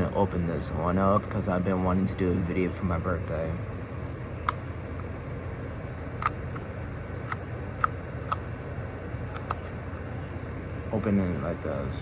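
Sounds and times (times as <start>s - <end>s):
packaging clicks: 6.2s - 6.6s, 9.3s - 9.8s.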